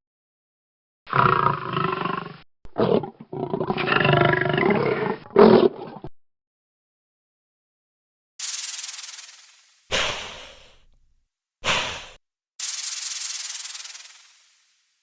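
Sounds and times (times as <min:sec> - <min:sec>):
large animal roaring: 0:01.1 - 0:06.1.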